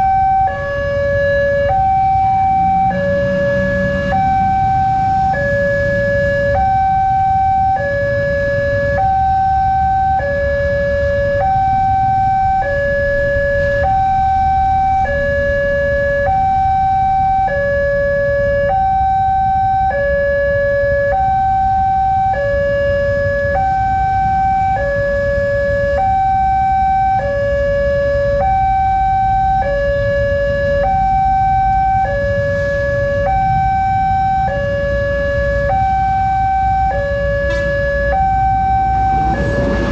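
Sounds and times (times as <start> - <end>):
two-tone warning siren: 0.0 - 39.9
low rumble: 38.6 - 39.9.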